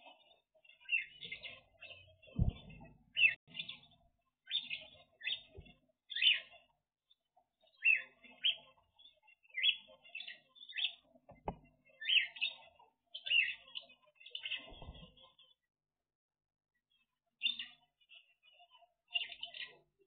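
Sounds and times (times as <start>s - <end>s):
birds chirping: 0.0s - 6.7s, 7.6s - 15.3s
low thump: 2.4s - 2.9s.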